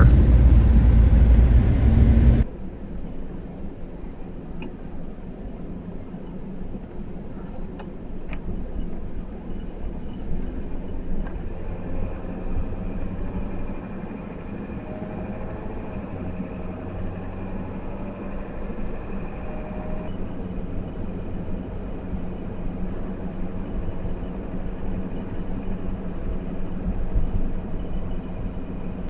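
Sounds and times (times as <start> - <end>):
faint whine tones: 0.0 - 2.4
truck engine and road noise: 0.0 - 2.5, 5.4 - 29.0.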